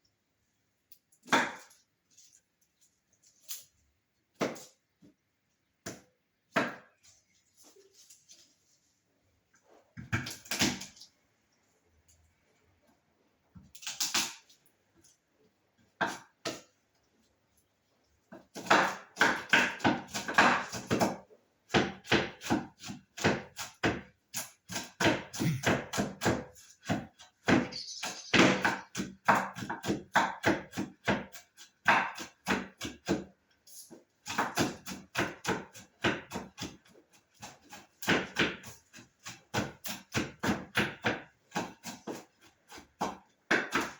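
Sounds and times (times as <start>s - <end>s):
knife chopping on cutting board: 4.4s - 4.8s, 5.8s - 6.9s, 16.0s - 16.7s, 18.3s - 33.3s, 34.2s - 43.9s.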